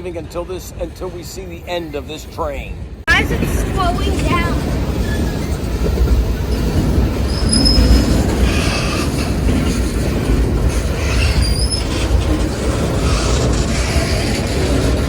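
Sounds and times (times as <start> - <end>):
train wheels rumbling on rail: 0.0 - 15.0
high-pitched wheel squeals: 7.2 - 9.3, 11.0 - 12.4.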